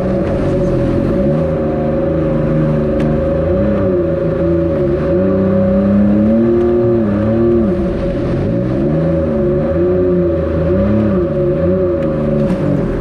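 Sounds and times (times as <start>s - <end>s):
steady tone: 0.0s - 12.4s
jet ski engine revving: 0.0s - 13.0s.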